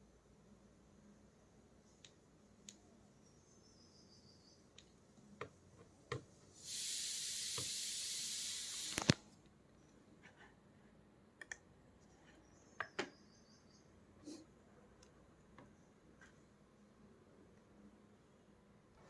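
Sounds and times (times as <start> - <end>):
steady hiss: 6.4 - 9.4.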